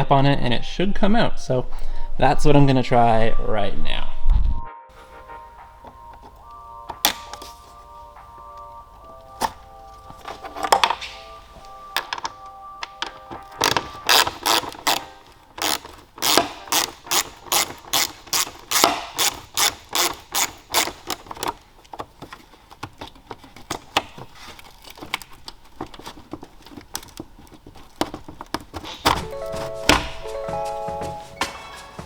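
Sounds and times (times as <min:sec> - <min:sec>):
plastic clips clicking and knocking: 0:11.9 - 0:29.3.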